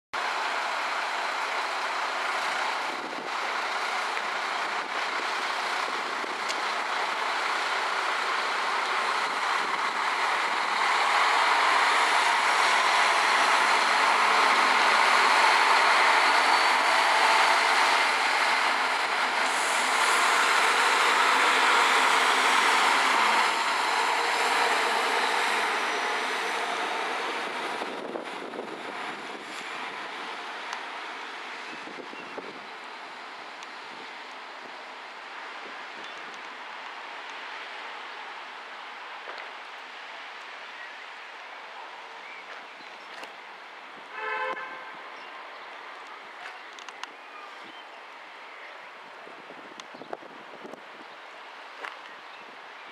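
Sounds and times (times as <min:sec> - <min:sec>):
diesel engines under power: 0:00.2 - 0:36.4
train wheels rolling on rails: 0:00.2 - 0:40.5.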